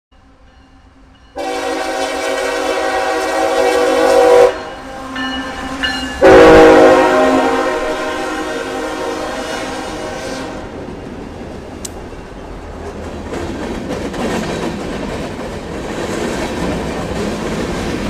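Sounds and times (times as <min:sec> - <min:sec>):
locomotive air horn chord: 0:01.4 - 0:10.8.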